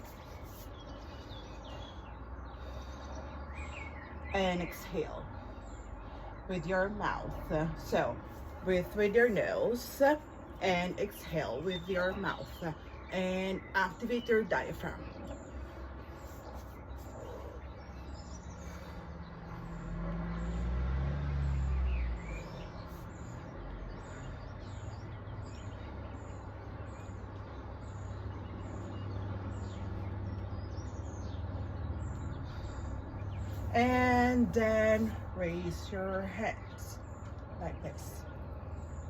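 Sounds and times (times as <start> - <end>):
bird chirping: 0.0 - 39.0
traffic rumble: 0.0 - 39.0
vehicle passing: 13.9 - 39.0.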